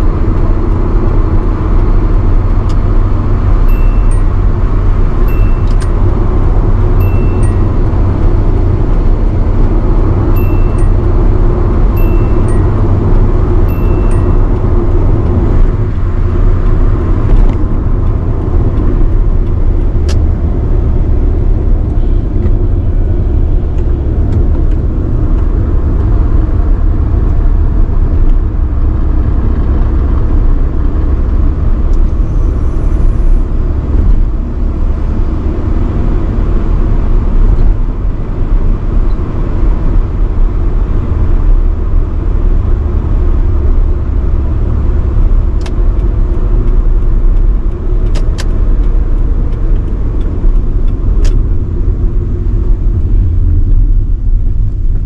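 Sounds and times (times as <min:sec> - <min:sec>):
car engine rumble: 0:00.0 - 0:55.0
brief high tone: 0:03.7 - 0:04.5, 0:05.2 - 0:06.0, 0:07.0 - 0:08.0, 0:10.4 - 0:11.2, 0:12.0 - 0:13.0, 0:13.7 - 0:14.8.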